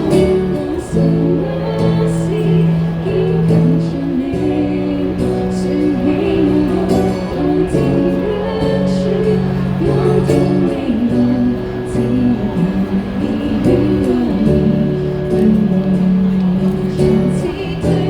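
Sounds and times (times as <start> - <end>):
low bass notes: 0.0 - 18.0
person singing: 0.0 - 18.0.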